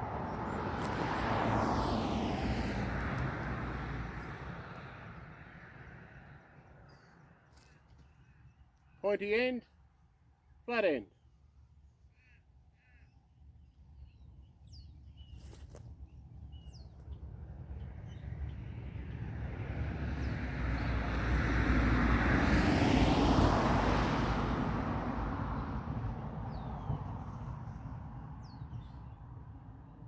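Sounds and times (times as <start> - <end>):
vehicle passing on road: 0.0 - 7.7, 17.0 - 30.0.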